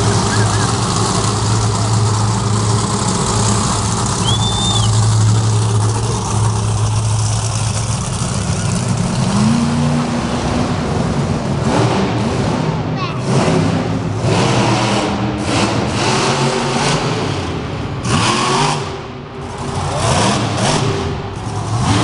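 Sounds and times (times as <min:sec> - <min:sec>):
monster truck engine revving: 0:00.0 - 0:22.0
high whistle: 0:04.2 - 0:05.0.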